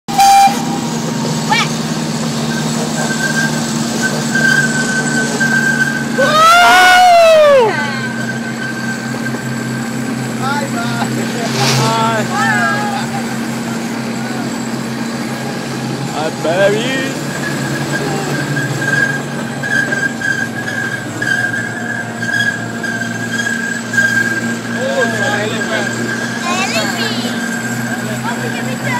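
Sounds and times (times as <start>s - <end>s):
ride train low drone: 0.1s - 28.9s
thin high squeal: 2.5s - 6.4s, 7.5s - 13.6s, 16.8s - 28.9s.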